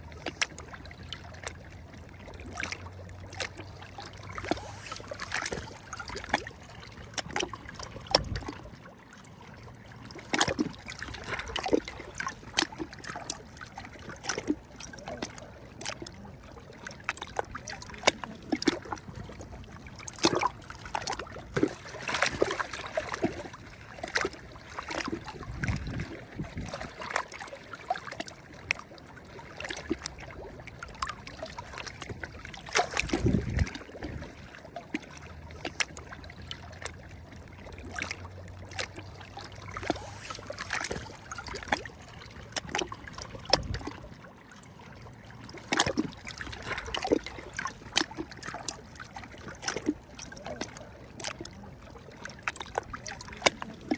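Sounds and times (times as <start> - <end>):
small waves lapping: 0.0 - 53.9
sharp slaps of water: 31.8 - 33.8.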